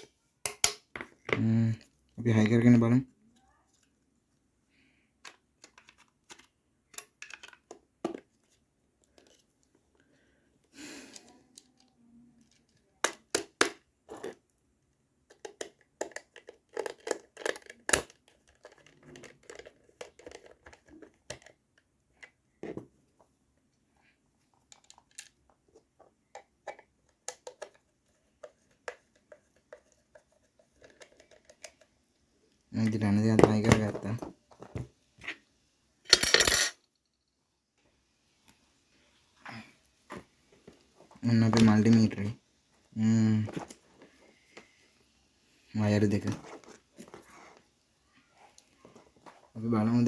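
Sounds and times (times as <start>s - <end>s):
plastic parts clicking and tapping: 5.2s - 9.4s, 15.2s - 22.9s, 24.6s - 32.0s.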